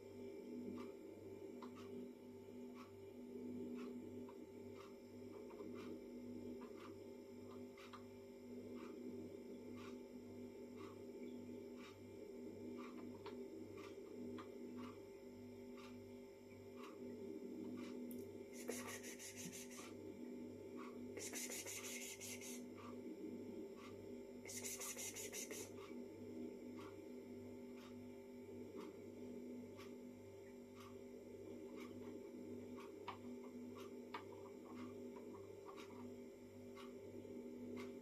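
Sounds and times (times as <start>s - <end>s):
low hum: 0.0s - 38.0s
faint regular ticking: 0.1s - 38.0s.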